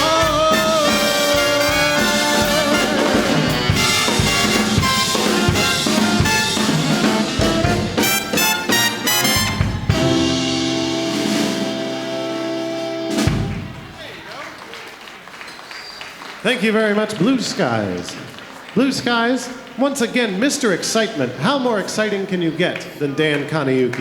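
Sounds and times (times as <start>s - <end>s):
drum kit playing swing: 0.0s - 14.3s
big band brass section: 0.0s - 15.1s.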